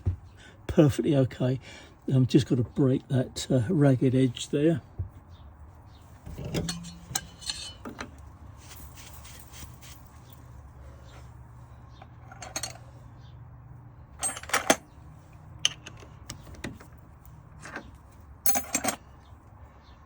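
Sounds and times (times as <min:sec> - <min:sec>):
low machine hum: 0:06.0 - 0:08.2
metal tools clinking: 0:06.3 - 0:10.0, 0:12.2 - 0:13.0, 0:14.2 - 0:15.0, 0:17.6 - 0:19.1.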